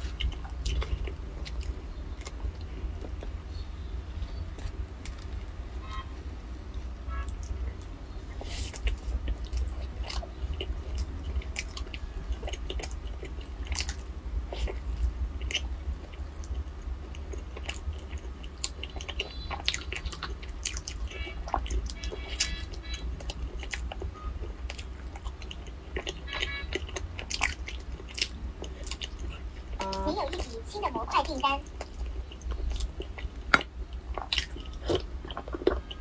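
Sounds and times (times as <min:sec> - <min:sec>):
chewing bread: 0:00.0 - 0:05.6, 0:06.6 - 0:36.0
steady low hum: 0:00.0 - 0:36.0.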